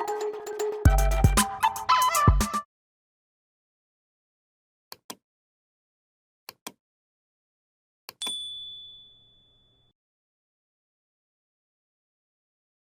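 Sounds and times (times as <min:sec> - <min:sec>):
high bell ding: 0:08.2 - 0:09.9.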